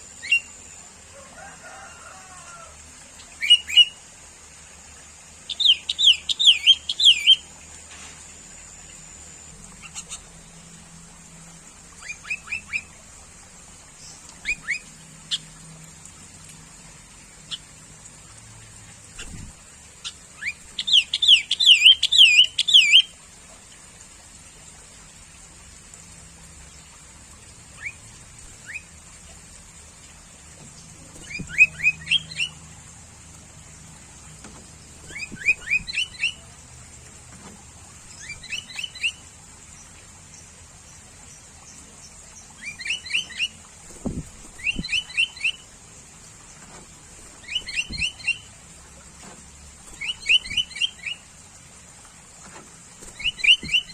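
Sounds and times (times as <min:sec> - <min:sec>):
bulbul whistled calls: 0:00.2 - 0:00.6, 0:05.5 - 0:07.4, 0:12.0 - 0:12.9, 0:14.1 - 0:15.5, 0:20.0 - 0:23.1, 0:28.6 - 0:28.9, 0:31.2 - 0:32.6, 0:35.1 - 0:36.5, 0:38.1 - 0:39.2, 0:42.4 - 0:45.7, 0:47.4 - 0:48.6, 0:50.0 - 0:51.3, 0:53.0 - 0:53.9.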